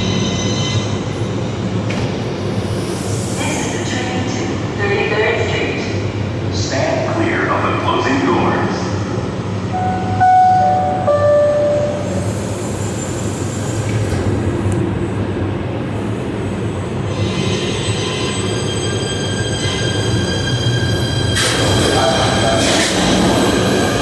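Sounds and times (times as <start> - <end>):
train rumble: 0.0 - 24.0
descending two-note chime: 9.7 - 12.2
train wheels squealing: 17.1 - 24.0.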